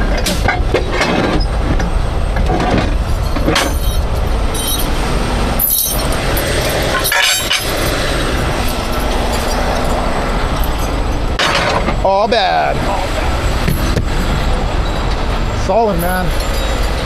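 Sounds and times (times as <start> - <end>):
tow truck diesel engine rumbling: 0.0 - 17.0.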